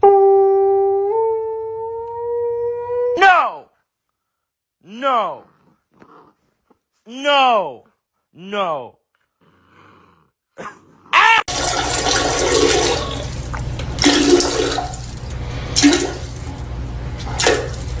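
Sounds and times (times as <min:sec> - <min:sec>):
water rushing with low rumble: 0:11.5 - 0:18.0.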